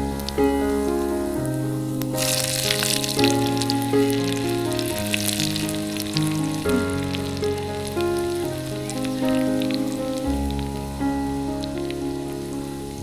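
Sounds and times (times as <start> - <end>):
background music with held chords: 0.0 - 13.0
food sizzling in hot oil: 0.0 - 13.0.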